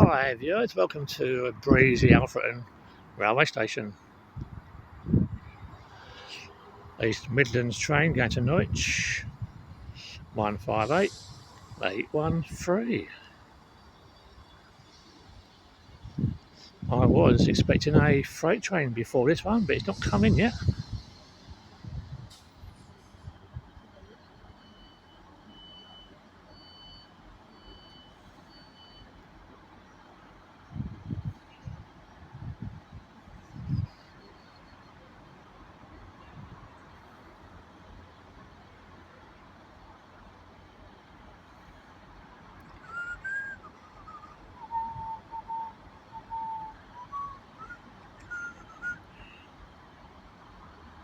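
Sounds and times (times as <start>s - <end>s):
steady background hiss: 5.9s - 17.2s
electronic warning beeps: 23.9s - 29.2s
person whistling a slow tune: 42.8s - 49.4s.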